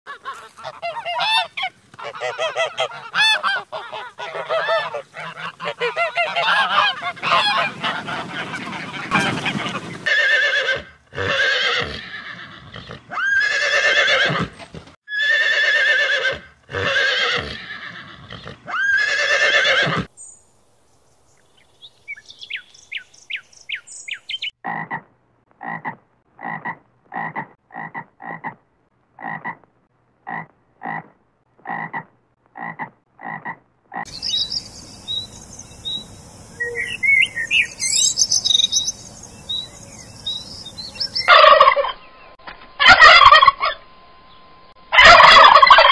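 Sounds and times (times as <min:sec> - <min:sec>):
horse whinnying: 0:07.2 - 0:20.1
bird chirps: 0:20.2 - 0:24.6, 0:34.1 - 0:44.6
short croaking calls: 0:30.3 - 0:34.6
steady hiss: 0:34.1 - 0:41.1.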